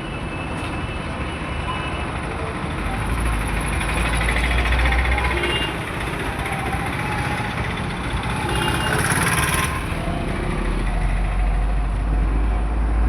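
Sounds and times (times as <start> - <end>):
road traffic engines: 0.0 - 13.0
heavy low engine rumble: 2.2 - 12.7
vehicle passing close: 3.4 - 11.0.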